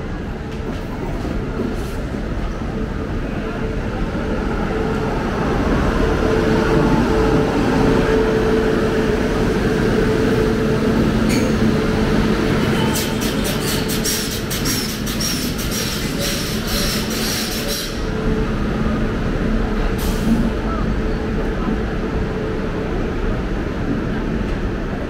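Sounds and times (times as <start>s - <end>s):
electric locomotive humming: 0.0s - 25.0s
train wheels clicking over rail joints: 12.8s - 18.0s.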